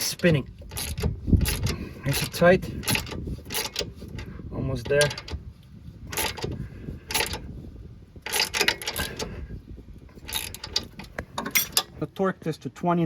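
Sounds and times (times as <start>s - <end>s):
ratchet wrench clicking: 0.6s - 4.3s, 8.3s - 9.3s, 10.2s - 11.8s.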